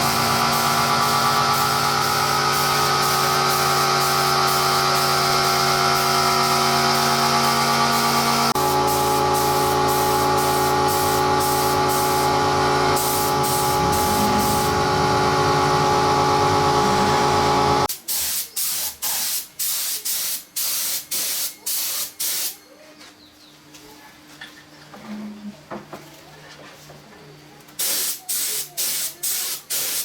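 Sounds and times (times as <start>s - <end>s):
spraying hiss of air: 0.0s - 15.0s, 27.8s - 30.0s
machine running: 0.0s - 17.9s.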